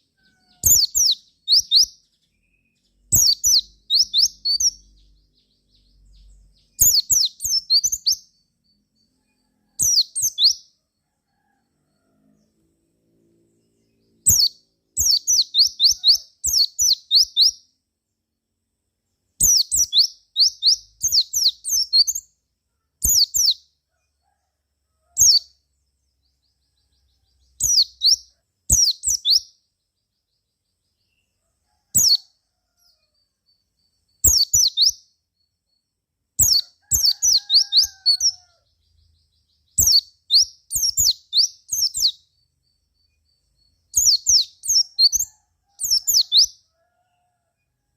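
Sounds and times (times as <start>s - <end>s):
bird singing rapid high chirps: 0.0s - 8.8s, 9.8s - 10.7s, 13.8s - 17.6s, 19.4s - 22.4s, 23.0s - 23.7s, 26.9s - 31.2s, 33.6s - 35.6s, 36.4s - 46.6s.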